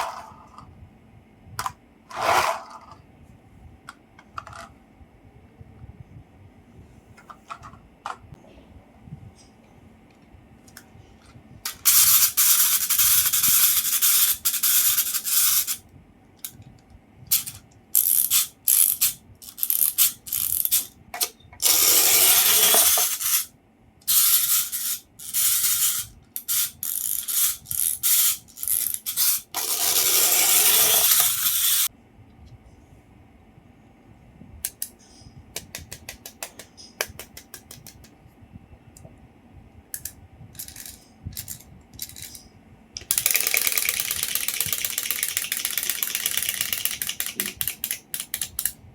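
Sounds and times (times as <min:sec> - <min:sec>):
toy gear mechanism whirring: 0:11.6 - 0:15.8, 0:17.3 - 0:31.9, 0:40.0 - 0:42.4, 0:43.0 - 0:48.8.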